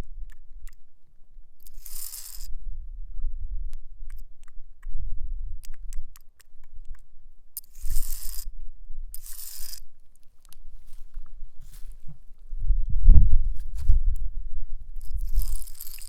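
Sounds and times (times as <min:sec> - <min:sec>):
nails scratching stone: 0:01.6 - 0:02.5, 0:07.6 - 0:08.5, 0:09.1 - 0:12.0, 0:15.0 - 0:16.0.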